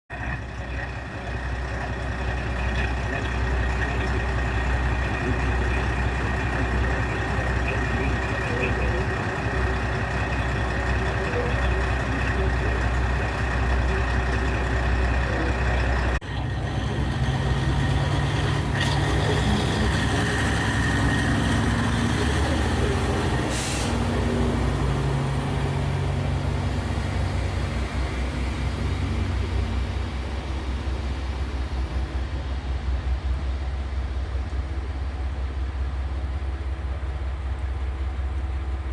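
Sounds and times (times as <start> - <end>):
rattling diesel railcar engine: 0.1 - 38.9
air hiss: 23.5 - 24.1.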